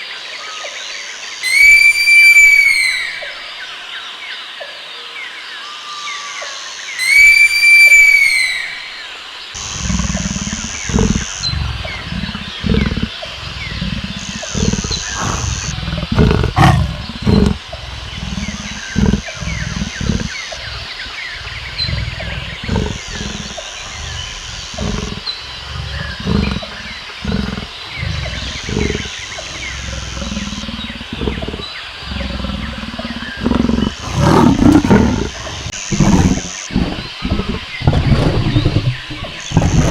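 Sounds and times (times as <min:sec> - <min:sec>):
lion roaring and grunting: 0:09.6 - 0:39.9.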